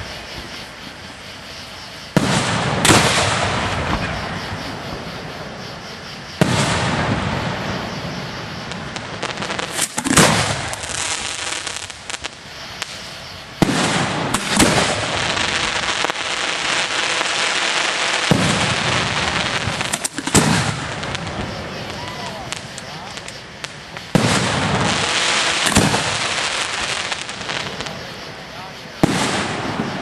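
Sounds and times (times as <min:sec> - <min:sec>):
fireworks crackling and hissing: 0:00.0 - 0:30.0
firework shell reports: 0:18.2 - 0:30.0.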